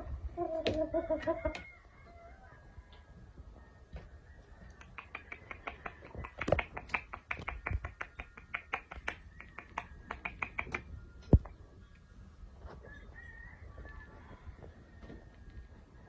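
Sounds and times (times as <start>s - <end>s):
rapid sharp clicks: 4.8s - 10.9s.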